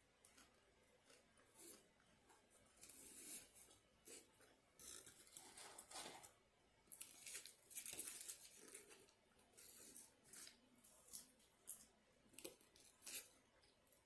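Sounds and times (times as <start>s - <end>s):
paper wrapper crinkling: 6.9s - 11.4s.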